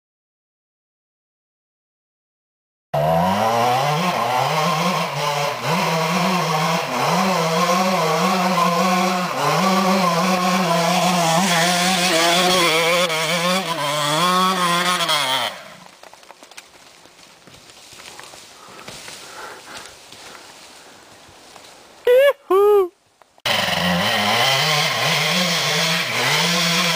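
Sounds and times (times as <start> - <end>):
dirt bike engine revving: 3.0 - 15.9, 23.4 - 26.9.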